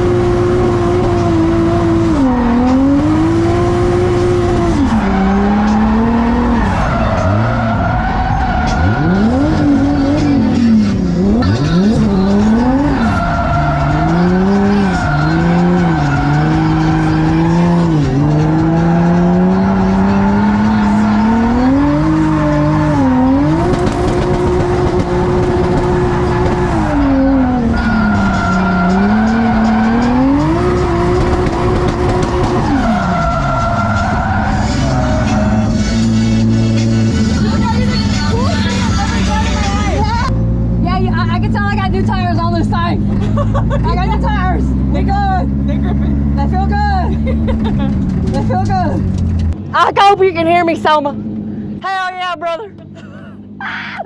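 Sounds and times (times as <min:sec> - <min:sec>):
tyres squealing and skidding: 0:00.0 - 0:40.3
car engine revving hard: 0:00.0 - 0:49.4.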